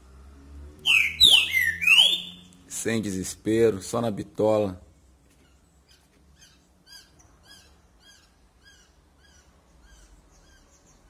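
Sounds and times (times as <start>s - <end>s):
faint bird chirping: 0.8s - 2.8s, 5.0s - 11.0s.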